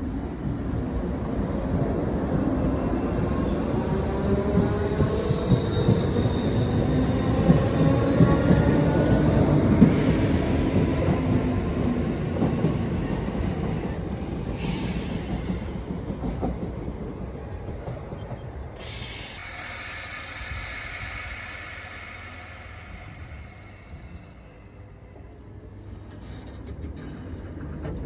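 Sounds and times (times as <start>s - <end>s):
train rumbling on rails: 0.0s - 28.0s.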